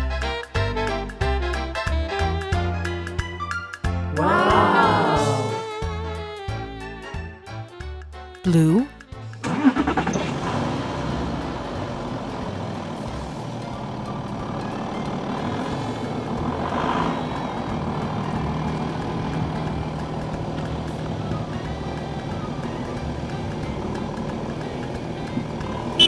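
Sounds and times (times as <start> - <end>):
car engine running: 9.2 - 26.0.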